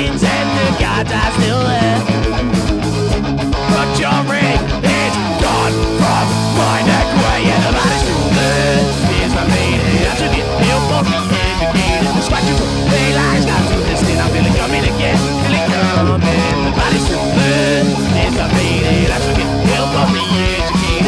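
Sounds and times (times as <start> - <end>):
live punk rock band: 0.0 - 21.0.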